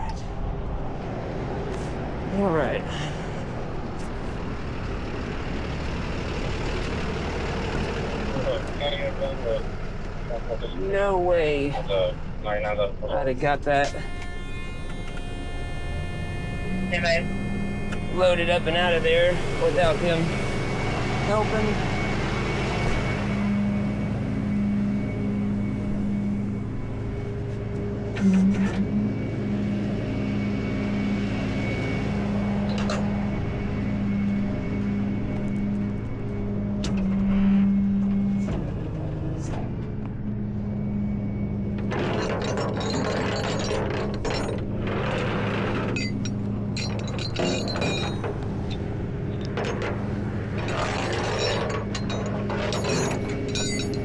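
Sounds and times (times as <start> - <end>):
truck engine humming: 0.0 - 54.0
metal hardware clinking: 46.0 - 48.3, 50.7 - 54.0.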